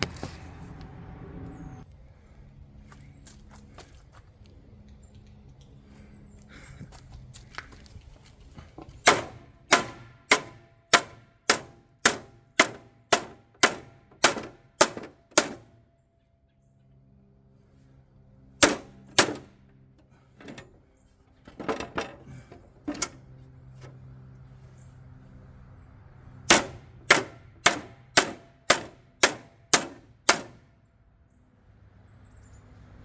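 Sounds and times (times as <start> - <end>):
hammer striking metal plate: 9.0 - 15.7, 18.6 - 19.5, 26.5 - 30.6.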